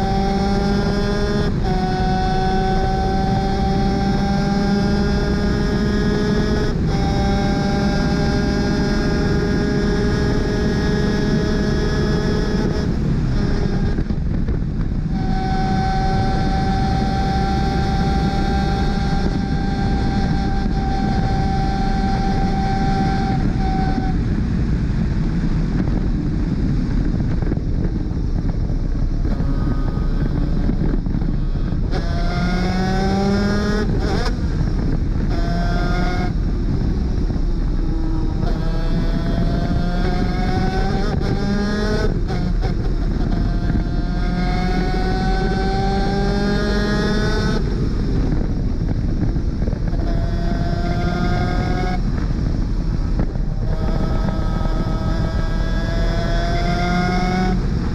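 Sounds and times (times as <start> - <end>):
kart engine at racing speed: 0.0 - 57.9
wind rush: 0.0 - 57.9.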